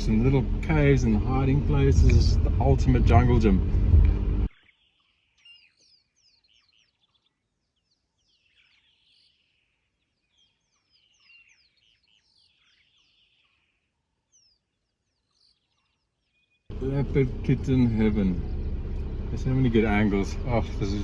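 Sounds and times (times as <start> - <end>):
faint birdsong chirps and whistles: 4.5 - 16.7.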